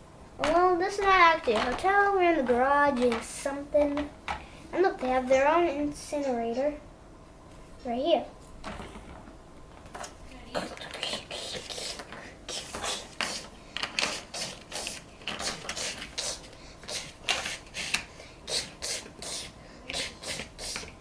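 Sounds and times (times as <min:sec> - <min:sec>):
plastic toy pieces scraping and clicking: 0:00.4 - 0:04.1.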